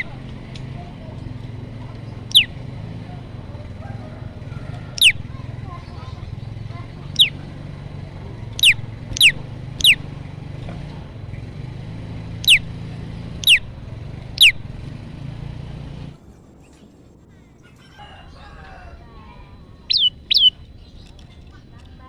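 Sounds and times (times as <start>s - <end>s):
faint bird twittering: 0.0s - 0.3s, 1.8s - 10.4s, 12.3s - 14.9s, 16.6s - 22.0s
bird falling call notes: 2.3s - 2.6s, 4.9s - 5.2s, 7.1s - 7.4s, 8.5s - 10.1s, 12.4s - 12.7s, 13.4s - 13.7s, 19.8s - 20.6s.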